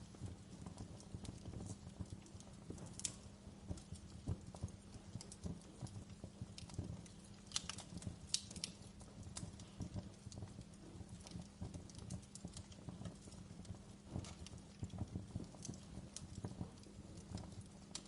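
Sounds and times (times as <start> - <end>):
low rumble of flame: 0.0 - 18.0
wood fire crackling and popping: 0.0 - 18.0.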